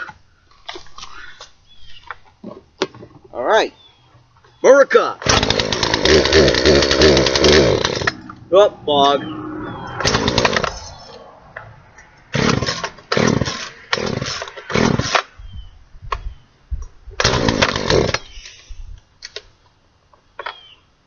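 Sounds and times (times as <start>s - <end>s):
chainsaw cutting plastic: 5.2s - 8.2s, 10.0s - 10.9s, 12.3s - 15.3s, 17.2s - 18.4s
chainsaw revving and idling: 5.2s - 8.4s, 10.0s - 10.9s, 12.3s - 15.3s, 17.2s - 18.4s.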